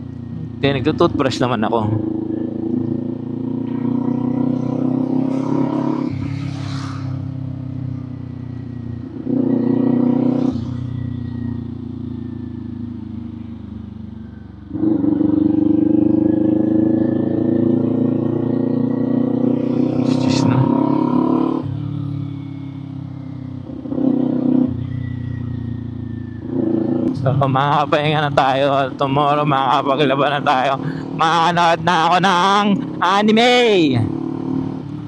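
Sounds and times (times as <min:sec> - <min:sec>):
motorcycle engine accelerating: 0:00.0 - 0:35.0.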